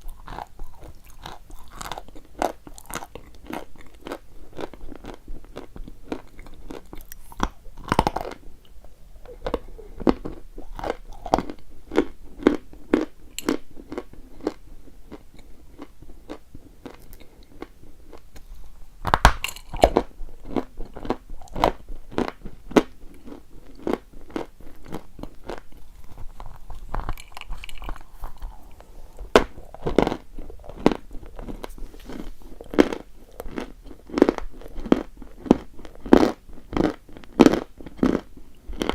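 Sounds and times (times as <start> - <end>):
person crunching chalk: 25.5 - 36.0.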